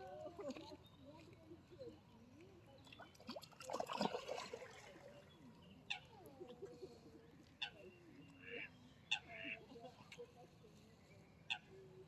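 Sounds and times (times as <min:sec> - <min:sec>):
ducks splashing in water: 0:03.3 - 0:04.9.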